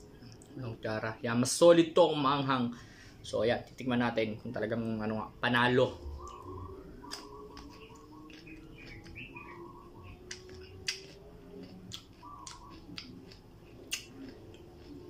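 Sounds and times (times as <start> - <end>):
faint bird chirps: 5.2 - 15.0
crisp crunching chewing: 7.0 - 15.0.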